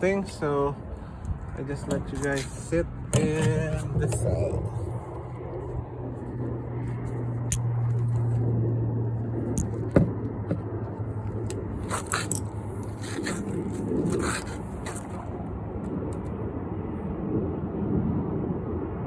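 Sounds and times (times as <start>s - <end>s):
steady low hum: 0.0s - 19.0s
tools clicking and scraping: 11.3s - 15.2s.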